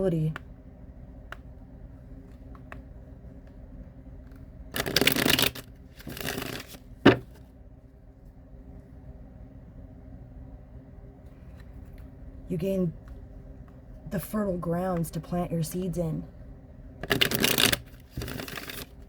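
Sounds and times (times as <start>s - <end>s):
cards being shuffled: 4.3s - 7.4s, 17.0s - 19.0s.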